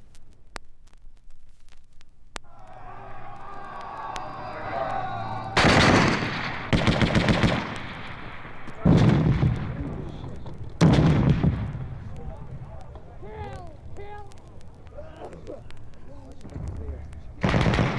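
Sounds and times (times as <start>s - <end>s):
rapid machine-gun fire: 5.6s - 12.1s, 17.4s - 17.9s.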